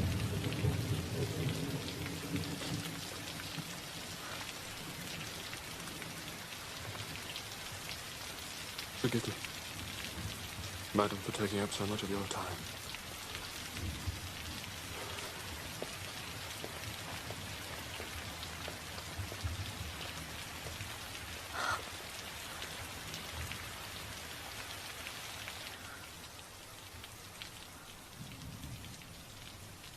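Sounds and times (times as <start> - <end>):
heavy rain pattering: 0.0 - 29.9.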